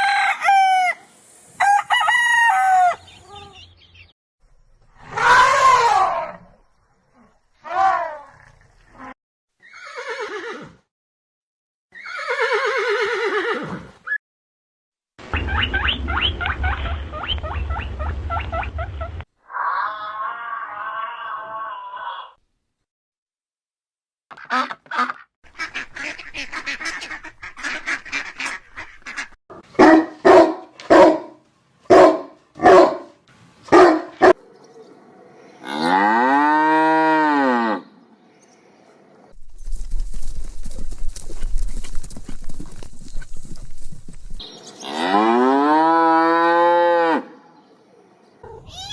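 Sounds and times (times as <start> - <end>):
horse whinnying: 9.6 - 10.8, 11.9 - 14.2
cow mooing: 35.6 - 37.8, 44.8 - 47.3.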